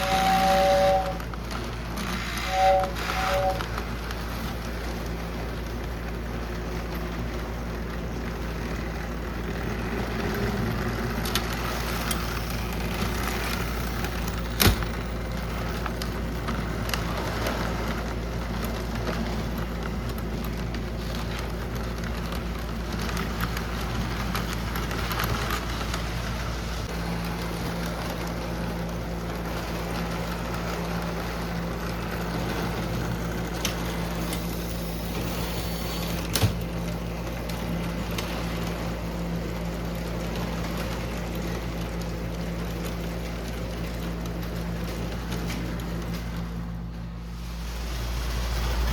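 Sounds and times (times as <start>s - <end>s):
model train motor hum: 0.0s - 14.8s, 39.8s - 46.3s
wheels rumbling on track: 0.0s - 48.9s.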